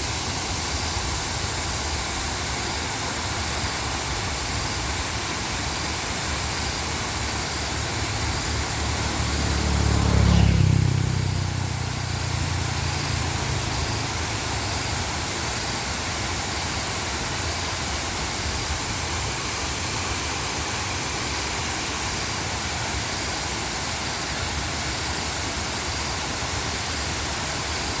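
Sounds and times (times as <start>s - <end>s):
waterfall rushing: 0.0s - 9.6s, 11.7s - 28.0s.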